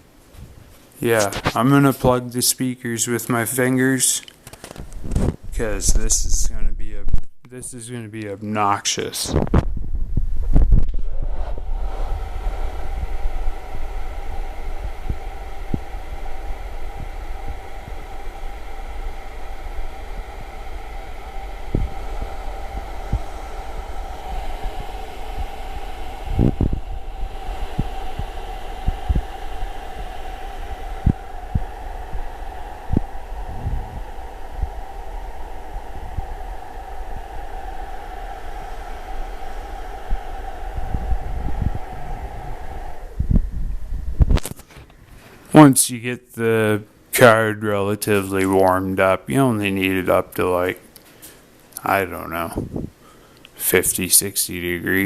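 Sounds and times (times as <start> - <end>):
hair dryer running: 10.7 - 44.6.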